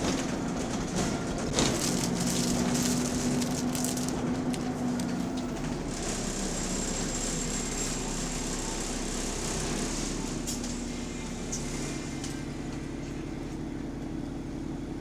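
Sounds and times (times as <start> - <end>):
rattly crackling background: 0.0 - 4.8
bus engine running: 0.0 - 15.0.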